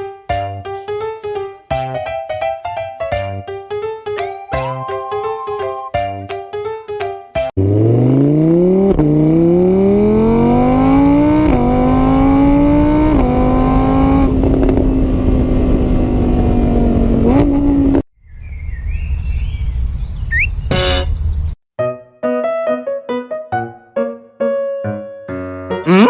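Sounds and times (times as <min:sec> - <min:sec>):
vehicle engine accelerating: 0:07.6 - 0:21.6.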